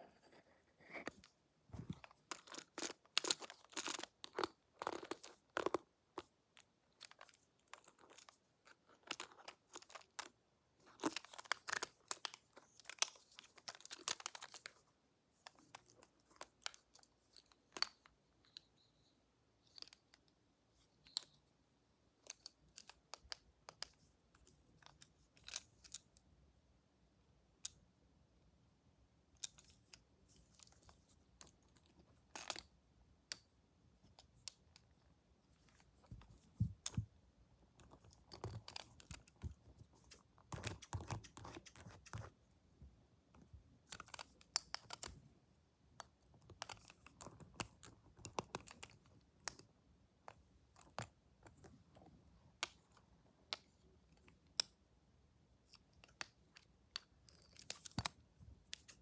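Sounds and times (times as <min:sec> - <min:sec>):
crackling and scratching: 0:37.7 - 0:42.4.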